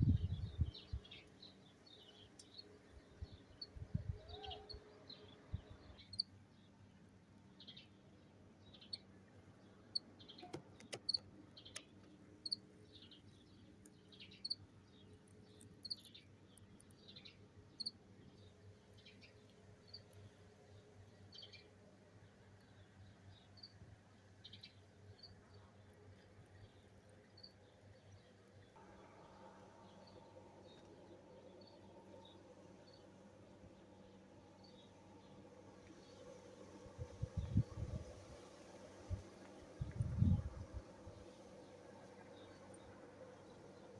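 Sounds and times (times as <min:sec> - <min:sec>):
wind rumble on microphone: 0:00.0 - 0:01.2, 0:03.1 - 0:04.7, 0:36.8 - 0:38.4, 0:39.1 - 0:41.2
small birds chirping: 0:00.0 - 0:36.3.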